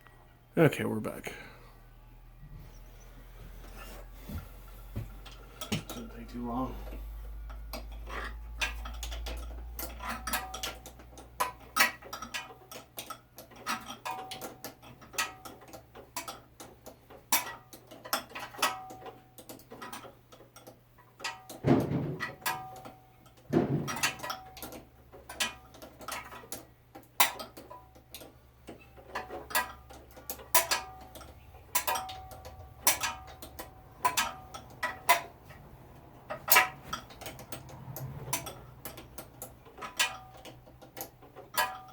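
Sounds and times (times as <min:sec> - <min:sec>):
heavy knocks: 0:23.5 - 0:24.2.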